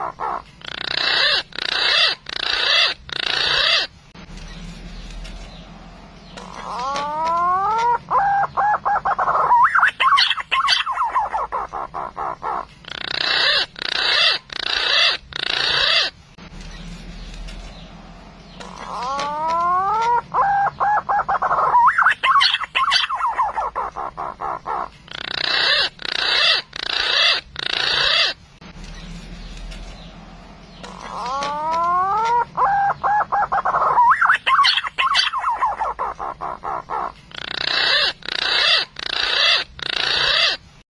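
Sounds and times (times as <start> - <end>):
pigeon calling recording: 0.0 - 5.5, 6.3 - 40.8.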